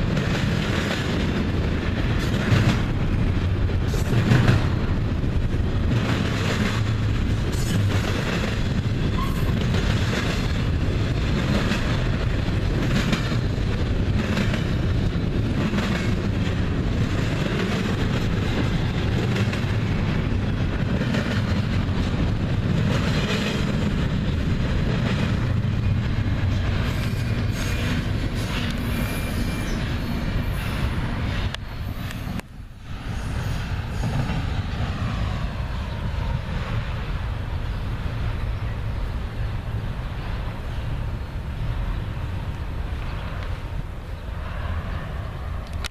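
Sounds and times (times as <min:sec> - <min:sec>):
wheels clicking over rail joints: 0:00.0 - 0:32.5
freight train rumbling past: 0:00.0 - 0:45.9.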